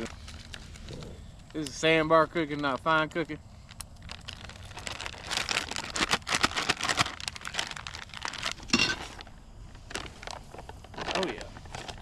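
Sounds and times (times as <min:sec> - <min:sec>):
plastic bag crinkling: 0:00.0 - 0:00.9, 0:03.6 - 0:12.0.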